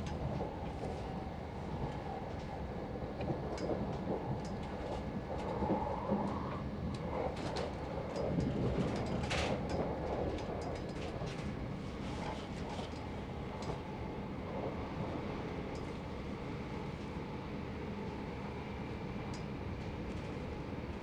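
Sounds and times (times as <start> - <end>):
train interior rumble: 0.0 - 21.0
light clicks and rattles: 6.9 - 11.6.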